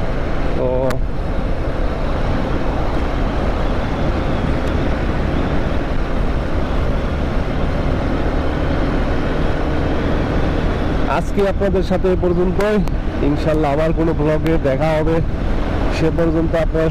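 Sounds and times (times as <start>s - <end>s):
road and wind noise: 0.0s - 16.9s.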